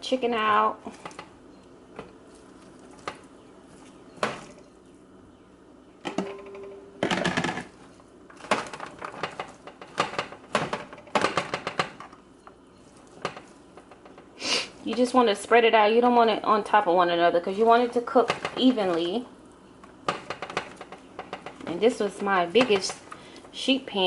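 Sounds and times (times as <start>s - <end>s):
chicken clattering on sheet pan: 20.0s - 23.0s.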